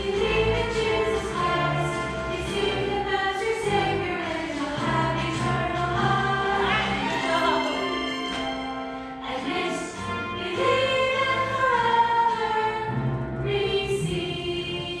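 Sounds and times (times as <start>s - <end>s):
instrumental backing: 0.0s - 14.9s
choir singing long notes: 0.0s - 15.0s.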